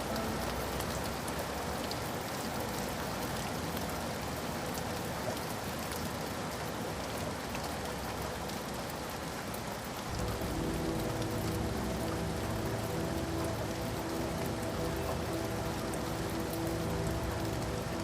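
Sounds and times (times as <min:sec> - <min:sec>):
rain falling on a surface: 0:00.0 - 0:18.0
deep rumble: 0:10.1 - 0:18.0.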